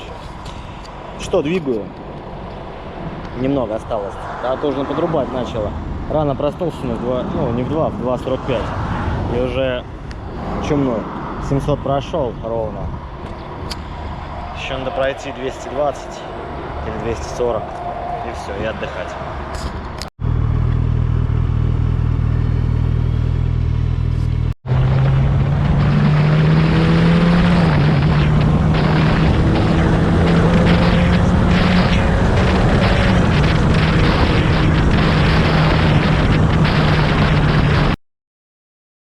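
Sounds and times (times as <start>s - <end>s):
motorcycle engine cruising: 19.5s - 37.9s
wind noise on microphone: 24.7s - 38.0s.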